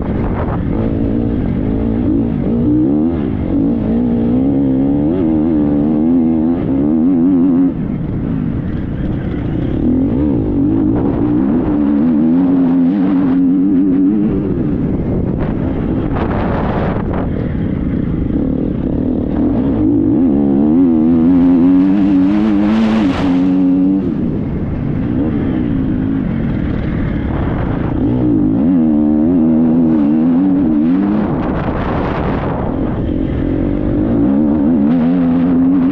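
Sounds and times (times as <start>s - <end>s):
motocross bike engine revving: 0.2s - 35.9s.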